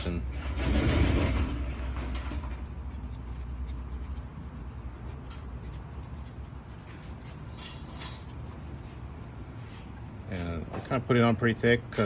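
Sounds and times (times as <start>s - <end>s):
low steady hum: 0.0s - 12.0s
brush scratching on rubber: 2.0s - 10.0s.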